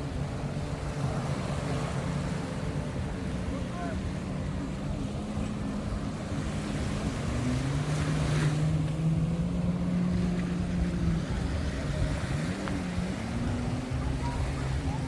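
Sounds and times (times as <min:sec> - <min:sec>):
motor engine humming: 0:00.0 - 0:15.0
surf washing: 0:00.0 - 0:15.0
wind on microphone: 0:00.0 - 0:15.0.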